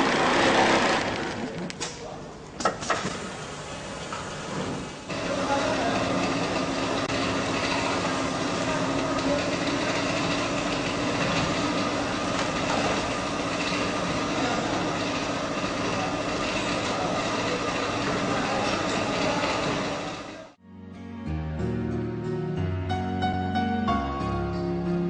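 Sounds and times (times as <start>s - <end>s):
sewing machine clattering: 5.1s - 20.5s.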